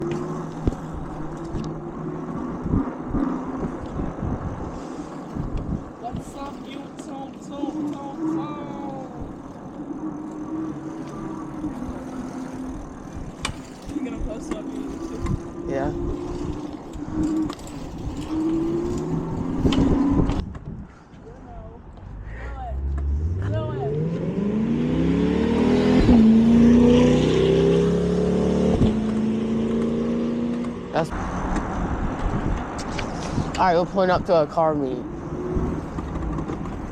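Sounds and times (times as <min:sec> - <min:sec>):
wind buffeting microphone: 0:00.0 - 0:27.9, 0:31.1 - 0:36.9
car engine accelerating: 0:22.1 - 0:32.1.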